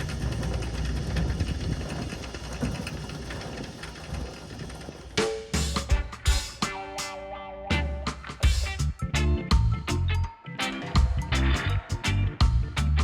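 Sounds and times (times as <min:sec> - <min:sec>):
engine running with rattle: 0:00.0 - 0:06.4
music: 0:05.4 - 0:13.0.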